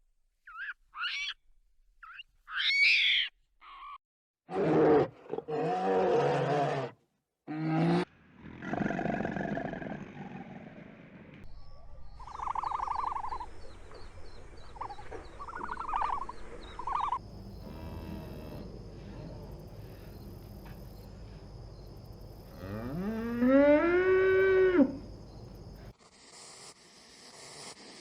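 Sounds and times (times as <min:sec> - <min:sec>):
cow mooing: 0:17.5 - 0:19.9, 0:22.4 - 0:25.1.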